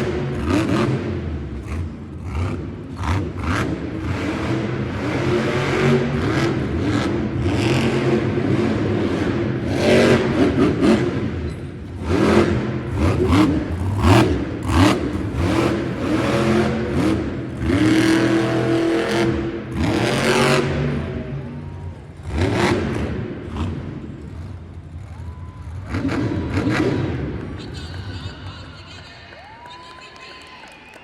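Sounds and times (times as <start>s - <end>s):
truck engine revving hard: 0.0s - 28.5s.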